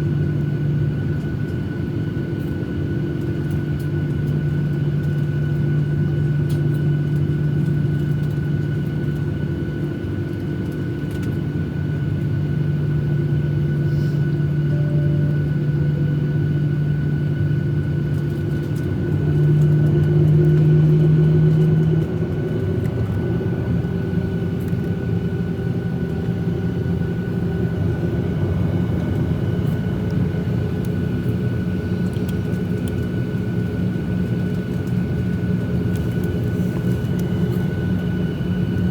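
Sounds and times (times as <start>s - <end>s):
airplane cabin drone: 0.0s - 38.9s
deeper hum: 13.1s - 34.5s.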